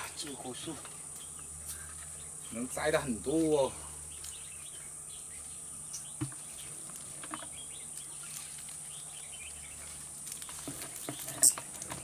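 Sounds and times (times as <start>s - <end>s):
high insect drone: 0.0s - 12.0s
bird chirps: 4.0s - 11.7s.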